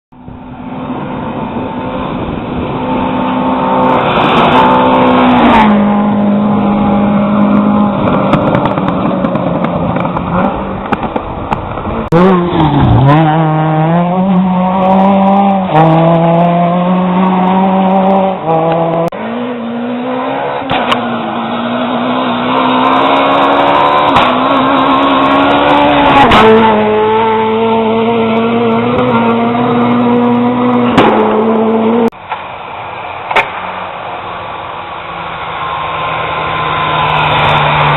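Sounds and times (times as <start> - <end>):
rally car engines revving: 0.3 - 37.9.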